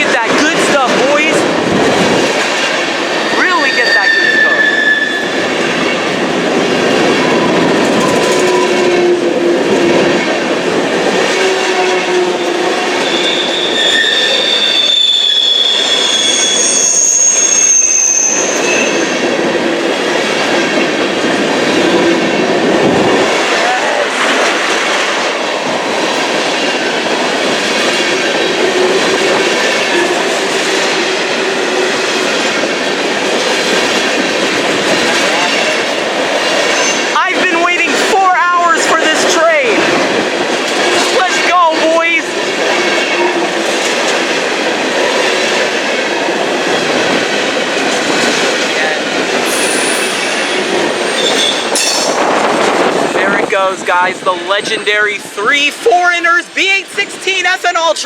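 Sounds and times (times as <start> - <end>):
train wheels rumbling on rail: 0.0 - 58.0
train wheels squealing: 3.2 - 5.4, 13.0 - 19.3, 49.4 - 52.2.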